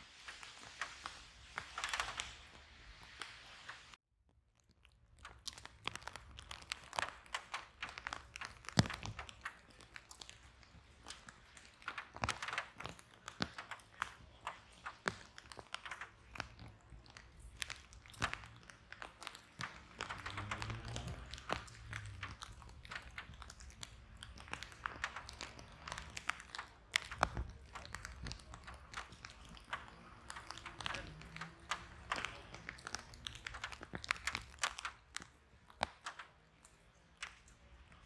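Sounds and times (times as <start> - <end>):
soft rush of flame: 0.0 - 4.0
wood fire crackling and popping: 0.0 - 4.0, 4.6 - 38.0.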